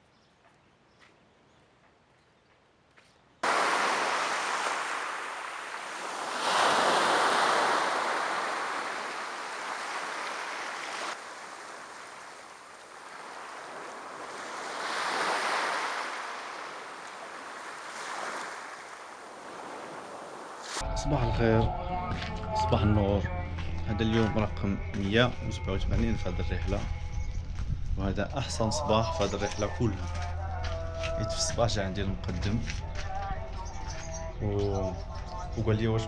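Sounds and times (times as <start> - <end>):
waves breaking on shore: 3.4 - 20.8.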